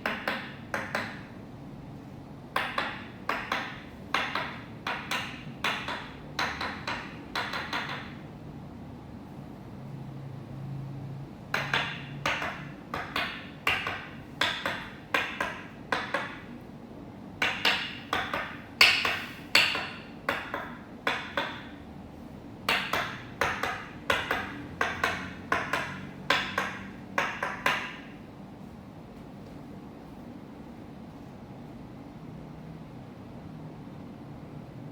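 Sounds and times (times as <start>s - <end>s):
wooden mallet tapping wooden peg: 0.0s - 1.4s, 2.6s - 8.3s, 11.5s - 16.6s, 17.4s - 21.8s, 22.7s - 28.1s.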